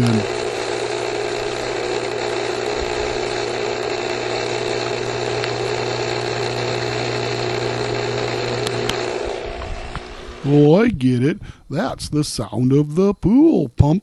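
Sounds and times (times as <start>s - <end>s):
pool pump motor hum: 0.0s - 10.9s.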